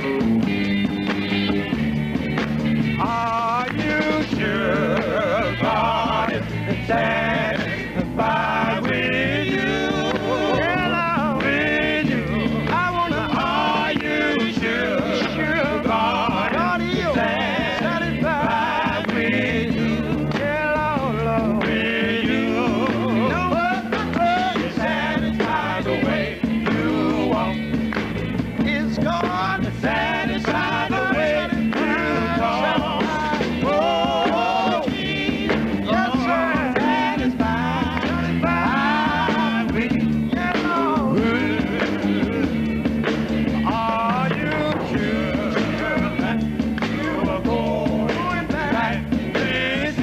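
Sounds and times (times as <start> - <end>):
male vocal group singing gospel: 0.0 - 1.2, 2.4 - 50.0
instrumental accompaniment: 0.0 - 50.0
low bass notes: 0.0 - 50.0.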